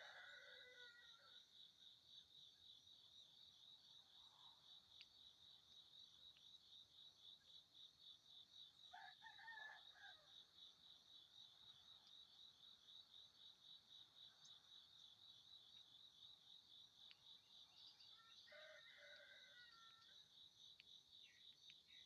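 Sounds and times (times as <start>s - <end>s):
distant rooster crowing: 0.0s - 1.4s, 8.9s - 10.3s, 18.2s - 20.2s
crickets chirping: 0.0s - 22.0s.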